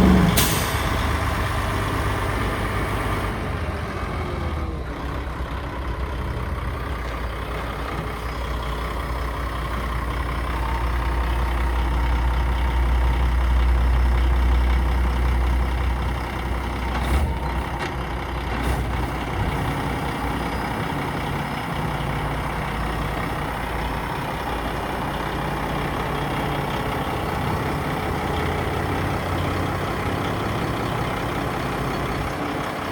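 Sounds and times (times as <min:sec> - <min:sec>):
truck diesel engine running: 0:00.0 - 0:32.9.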